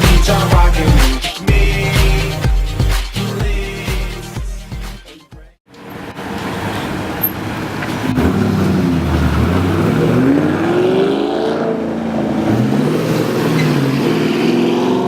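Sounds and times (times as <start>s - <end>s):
car engine revving: 6.0s - 15.0s.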